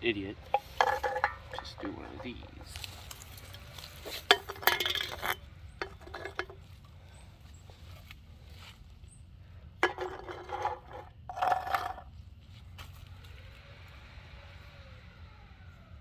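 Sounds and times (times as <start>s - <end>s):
aluminum cans clinking: 0.4s - 6.6s, 9.8s - 12.1s.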